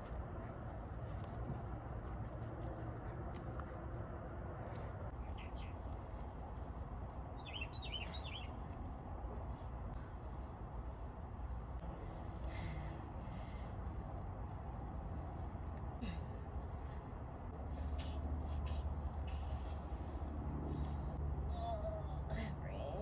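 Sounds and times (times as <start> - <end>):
low outdoor rumble: 0.0 - 23.0
small bird chirping: 7.4 - 9.6.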